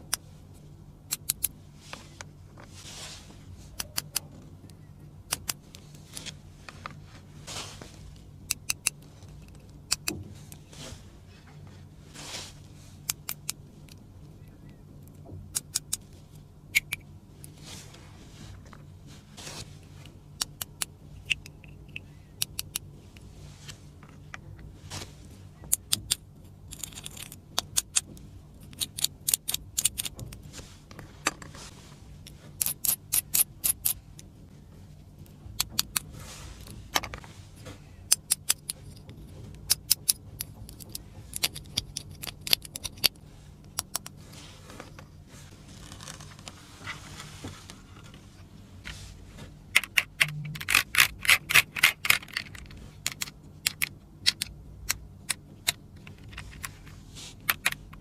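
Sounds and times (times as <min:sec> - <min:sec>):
faint steady hum: 0:00.0 - 0:58.0
plastic pieces clicking: 0:49.8 - 0:56.7.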